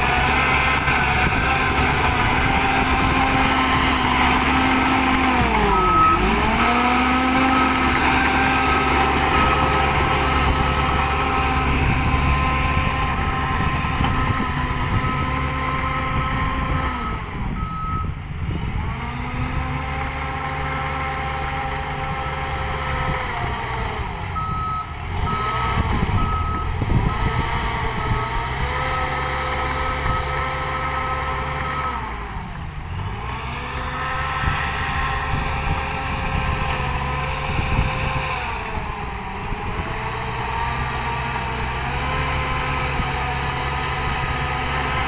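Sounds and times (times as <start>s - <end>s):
bulldozer diesel engine: 0.0s - 45.0s
reversing alarm beeping: 0.2s - 16.3s, 16.9s - 18.2s, 24.4s - 27.4s, 28.7s - 32.1s.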